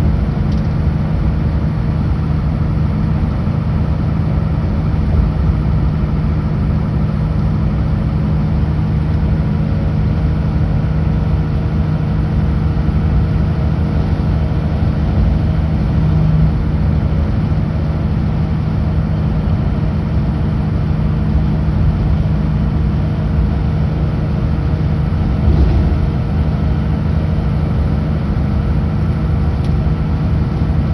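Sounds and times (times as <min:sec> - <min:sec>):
road and cab noise: 0:00.0 - 0:30.9
truck diesel engine running: 0:00.0 - 0:30.9
brief bump: 0:25.3 - 0:26.4.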